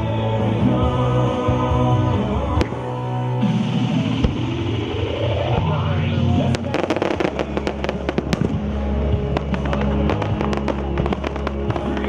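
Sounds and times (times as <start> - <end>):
music playing: 0.0 - 12.0
fireworks bangs and crackles: 2.1 - 12.0.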